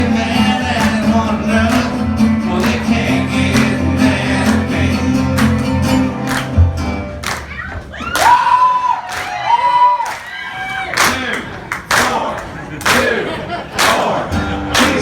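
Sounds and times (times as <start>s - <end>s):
person singing: 0.0s - 6.0s
strummed acoustic guitars: 0.0s - 7.5s, 13.7s - 15.0s.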